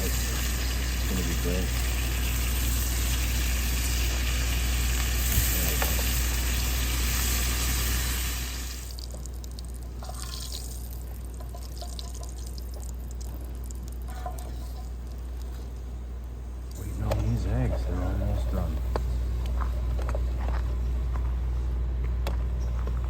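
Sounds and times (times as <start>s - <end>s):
bacon and eggs sizzling in pan: 0.0s - 15.4s
crackling fat spatters: 0.0s - 15.8s
steady low hum: 0.0s - 23.0s.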